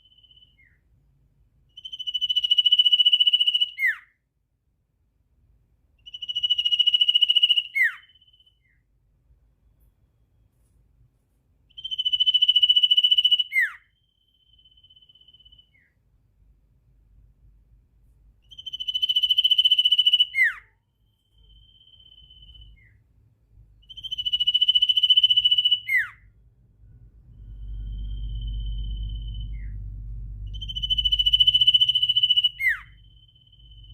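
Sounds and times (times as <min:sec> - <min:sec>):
bird singing rapid trills: 0:00.0 - 0:00.9, 0:01.7 - 0:04.1, 0:06.0 - 0:08.8, 0:11.7 - 0:16.0, 0:18.5 - 0:23.0, 0:23.8 - 0:26.3, 0:27.3 - 0:33.9.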